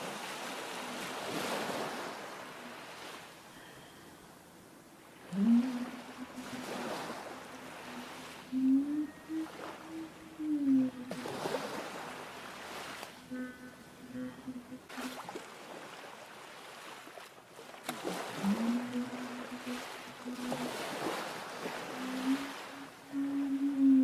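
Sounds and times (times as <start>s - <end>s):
waves washing: 0.0s - 24.0s
woman humming without words: 5.2s - 12.4s, 13.2s - 15.4s, 18.3s - 24.0s.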